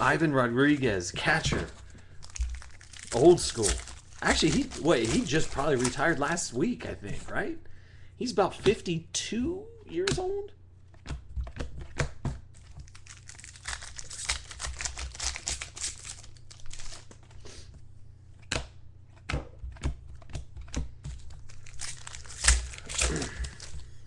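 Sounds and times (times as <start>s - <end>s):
foil wrapper crinkling and tearing: 0.0s - 6.6s, 12.5s - 17.2s, 21.1s - 24.0s.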